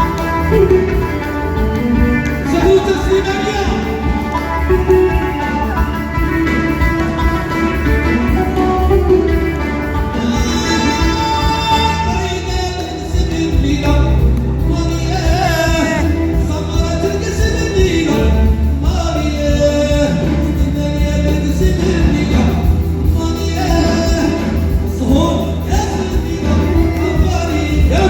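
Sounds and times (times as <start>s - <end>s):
steady beat with heavy bass: 0.0s - 10.9s.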